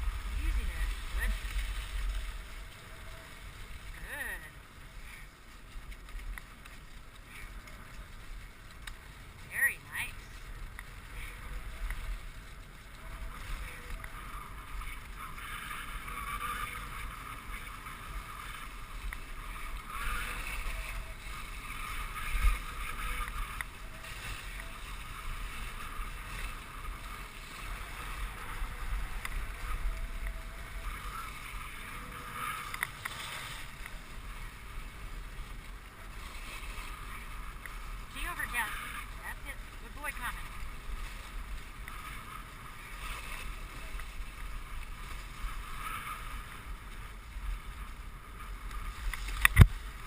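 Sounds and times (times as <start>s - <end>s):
sled runners sliding over snow: 0.0s - 50.0s.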